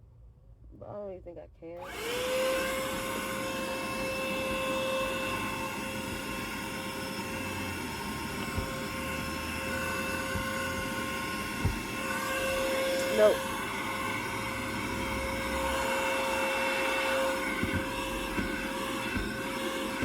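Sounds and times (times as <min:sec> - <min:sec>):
vacuum cleaner motor whine: 0:01.8 - 0:20.0.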